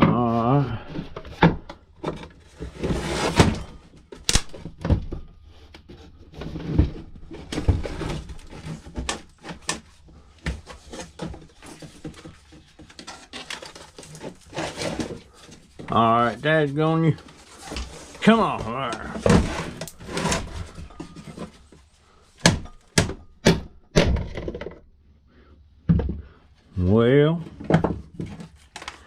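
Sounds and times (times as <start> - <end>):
plastic parts handled and pried apart: 0.9 - 16.0, 27.6 - 29.0.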